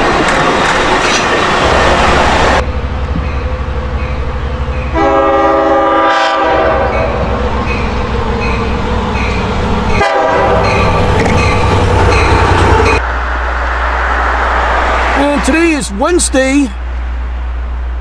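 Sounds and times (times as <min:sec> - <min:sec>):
locomotive diesel drone: 0:01.7 - 0:18.0
multi-note locomotive horn: 0:04.9 - 0:07.5, 0:10.0 - 0:10.8.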